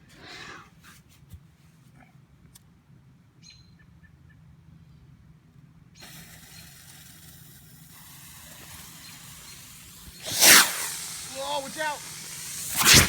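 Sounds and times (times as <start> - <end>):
firework fuse hissing: 6.0 - 13.0.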